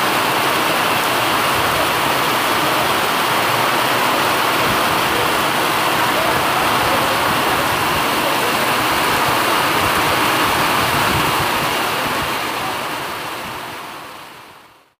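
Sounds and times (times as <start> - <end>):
heavy rain on flooded road: 0.0 - 15.0.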